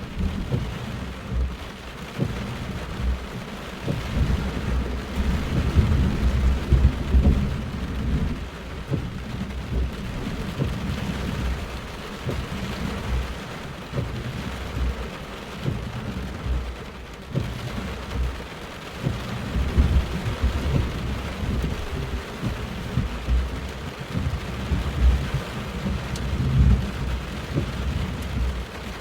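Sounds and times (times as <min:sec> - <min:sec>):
heavy rain pouring: 0:00.0 - 0:29.0
thunder rumbling: 0:02.2 - 0:15.0, 0:19.0 - 0:29.0.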